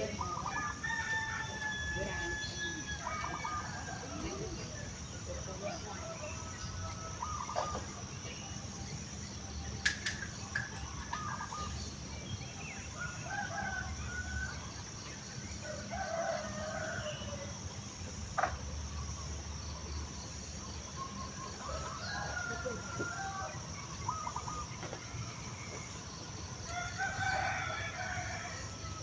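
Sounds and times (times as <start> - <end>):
bird calls: 0.0 - 8.8, 9.4 - 17.4, 18.4 - 28.9
high insect drone: 0.0 - 29.0
rooster crowing: 0.2 - 4.4, 15.6 - 17.5, 21.6 - 23.6, 26.6 - 29.0.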